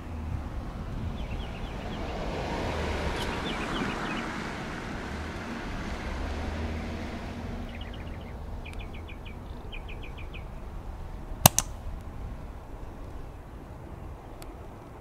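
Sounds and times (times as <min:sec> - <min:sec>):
wind rumble on microphone: 0:00.0 - 0:15.0
sharp clicks: 0:11.4 - 0:11.8.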